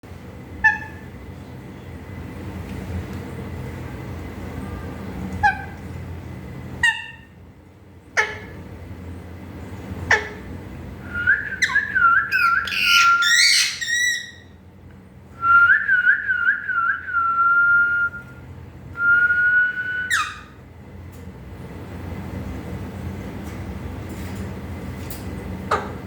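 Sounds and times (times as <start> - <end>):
parrot whistling: 11.1 - 14.5, 19.0 - 20.6.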